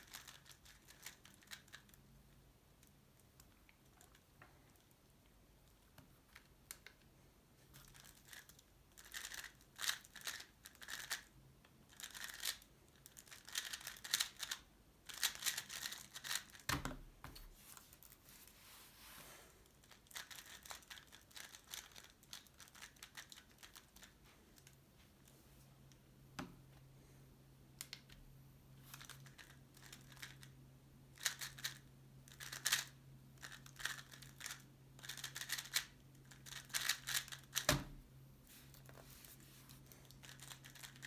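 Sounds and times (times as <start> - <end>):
speed cube clicking and rattling: 0.0 - 2.0, 7.8 - 11.3, 11.9 - 16.7, 19.8 - 24.1, 28.9 - 30.4, 31.2 - 37.7, 40.0 - 41.0.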